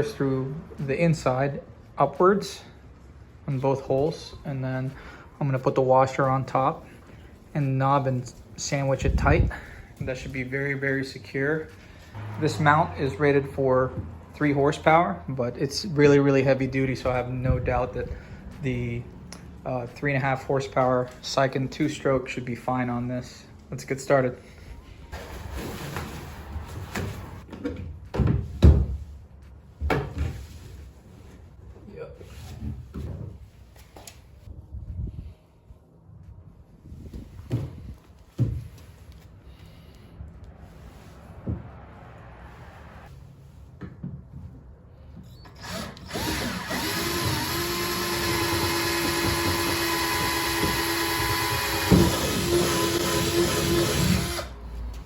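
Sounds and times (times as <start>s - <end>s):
power drill whining: 45.4s - 54.6s
knocks and thumps from tools: 48.3s - 54.2s.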